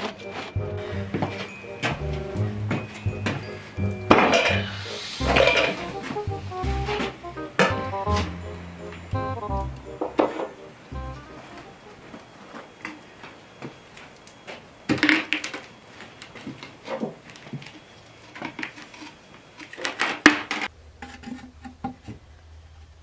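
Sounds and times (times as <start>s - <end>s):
kitchen utensils clinking on dishes: 0.0s - 6.2s.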